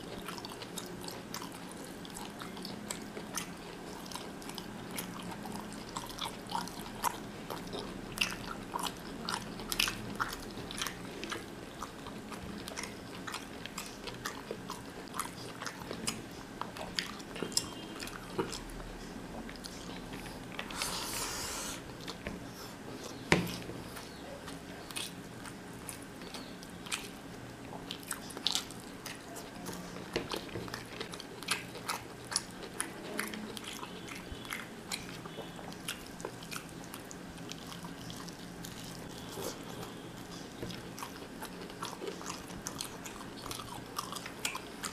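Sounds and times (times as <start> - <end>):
person chewing: 0.0 - 44.9.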